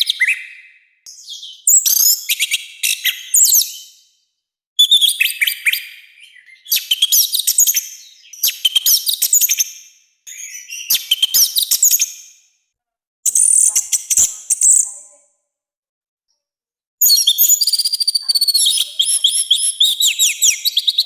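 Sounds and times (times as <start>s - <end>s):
bird singing whistles and chirps: 0.0s - 4.1s, 4.8s - 9.7s, 10.3s - 12.2s, 17.0s - 21.0s.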